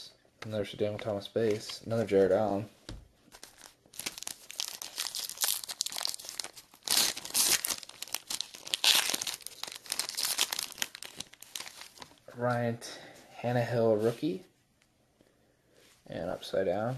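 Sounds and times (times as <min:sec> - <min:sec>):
foil wrapper crinkling and tearing: 0:03.3 - 0:12.2.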